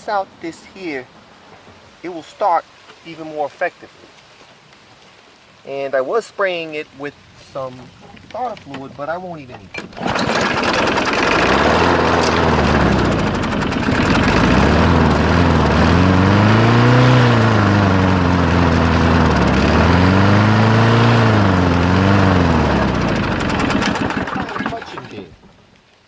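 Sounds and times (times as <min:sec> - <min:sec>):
lawn mower engine revving: 0:08.4 - 0:25.8.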